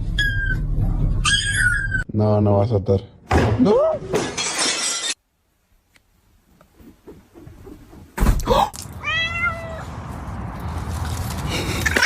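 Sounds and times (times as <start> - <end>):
cat meowing: 9.0 - 9.9.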